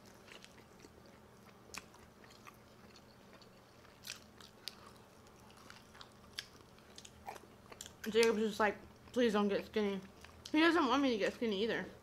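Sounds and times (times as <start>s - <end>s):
chewing chicken wings: 0.0s - 9.2s.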